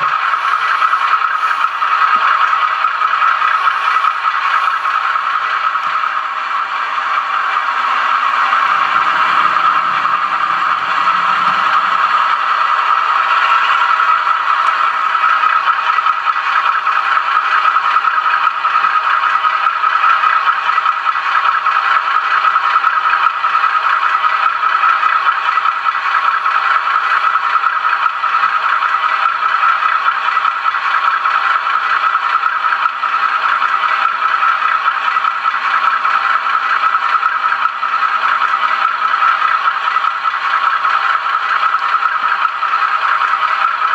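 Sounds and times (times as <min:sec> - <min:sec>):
small motor whirring: 0:00.0 - 0:19.0
model train wheels rattling: 0:00.0 - 0:43.9.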